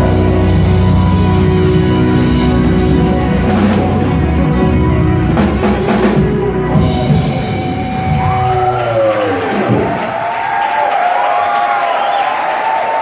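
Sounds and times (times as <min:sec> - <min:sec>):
live rock band playing: 0:00.0 - 0:10.3
loud drum fills: 0:01.8 - 0:10.5.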